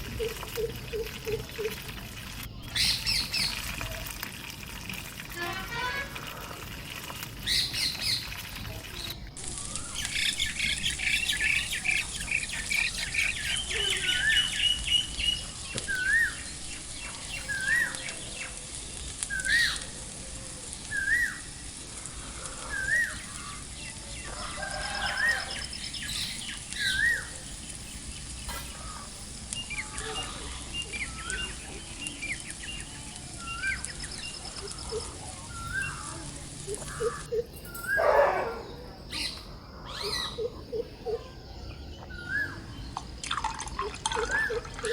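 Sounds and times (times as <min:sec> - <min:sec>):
birds chirping: 0:07.4 - 0:44.9.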